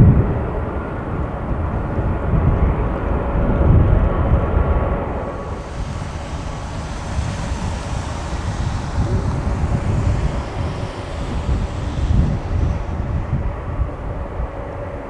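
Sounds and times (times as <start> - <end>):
wind buffeting microphone: 3.5 - 15.0
jet engines rumbling: 4.0 - 15.0.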